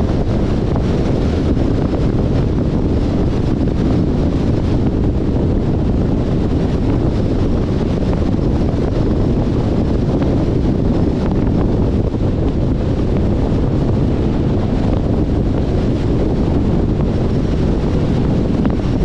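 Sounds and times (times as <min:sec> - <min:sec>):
road and tyre noise: 0:00.0 - 0:19.0
wind rush on microphone: 0:00.0 - 0:19.0.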